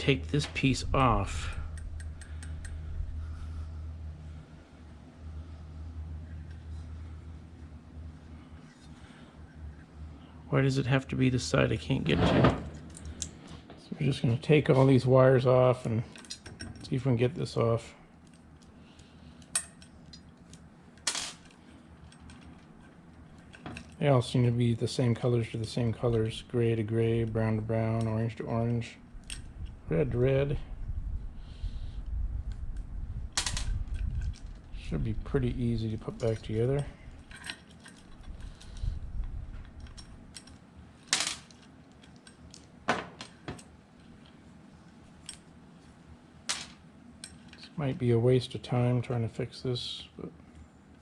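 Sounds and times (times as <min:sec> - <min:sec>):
small metal parts clinking: 0:18.2 - 0:24.0, 0:36.0 - 0:38.9, 0:39.6 - 0:43.7.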